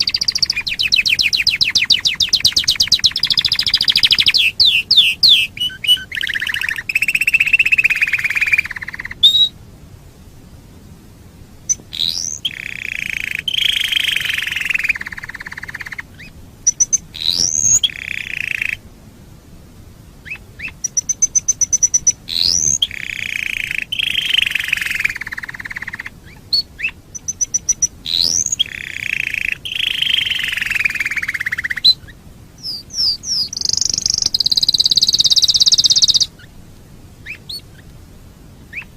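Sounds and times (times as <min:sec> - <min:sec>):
canary singing: 0:00.0 - 0:09.6, 0:11.6 - 0:18.8, 0:20.2 - 0:36.6, 0:37.2 - 0:38.0, 0:38.6 - 0:38.9.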